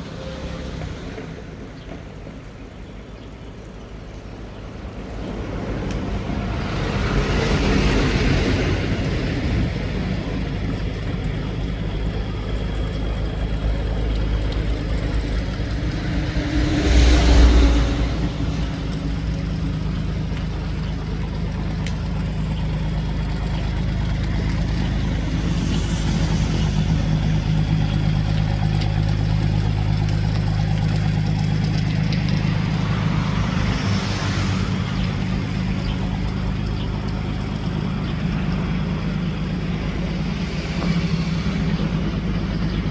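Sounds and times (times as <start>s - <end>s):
boat engine running: 0.0s - 42.9s
rushing noise: 5.3s - 21.1s, 22.2s - 29.0s, 31.5s - 36.3s, 38.6s - 42.9s.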